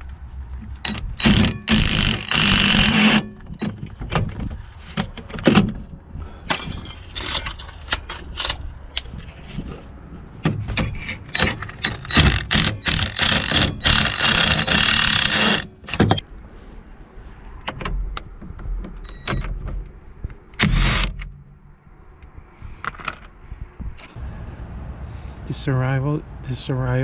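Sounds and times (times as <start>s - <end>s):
metallic clinks of bolts and tools: 6.5s - 9.1s
impact wrench spinning bolts: 11.8s - 16.1s.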